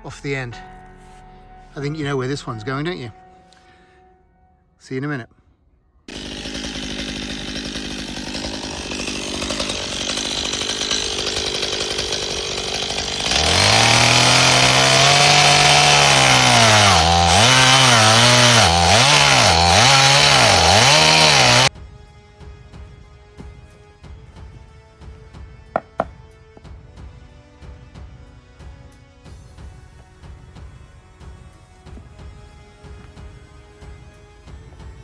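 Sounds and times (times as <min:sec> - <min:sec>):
chainsaw cutting a log: 0:06.1 - 0:21.7, 0:25.8 - 0:26.2.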